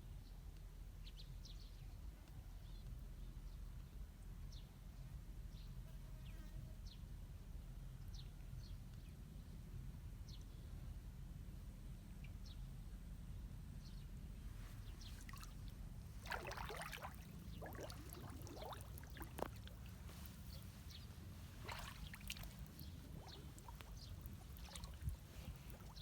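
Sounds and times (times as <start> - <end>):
water splashing and gurgling: 14.8 - 26.0.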